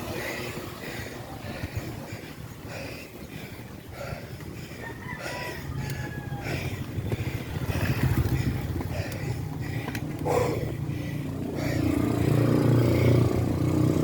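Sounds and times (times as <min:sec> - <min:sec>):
road traffic rumble: 0:00.0 - 0:14.0
rooster crowing: 0:04.8 - 0:06.8.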